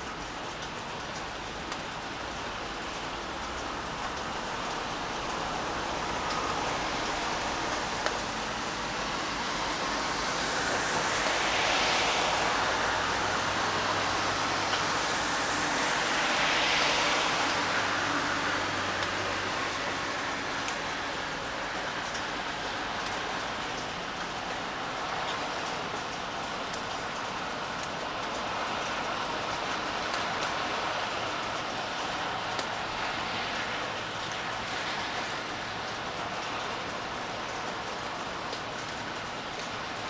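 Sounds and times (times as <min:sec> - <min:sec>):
rain hiss: 0:00.0 - 0:40.0
vehicle tyres swishing on wet road: 0:00.0 - 0:40.0.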